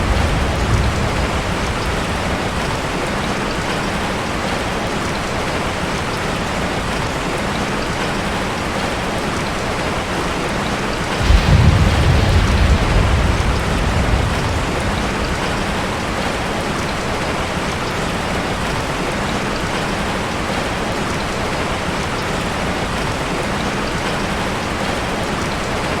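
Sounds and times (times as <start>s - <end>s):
thunder rumble: 0.0s - 4.3s, 11.1s - 17.5s
heavy rain on metal roof: 0.0s - 26.0s.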